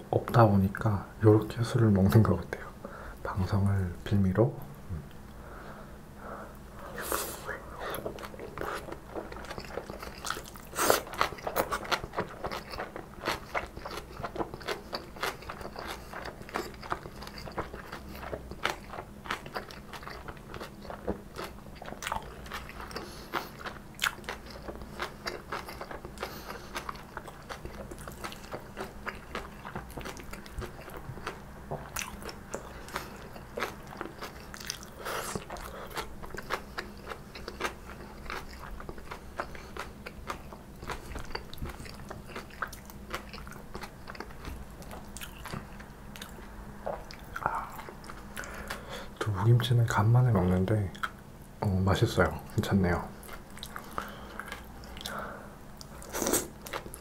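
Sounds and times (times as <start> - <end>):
wet crunchy chewing: 7.8 - 48.9, 53.2 - 55.2.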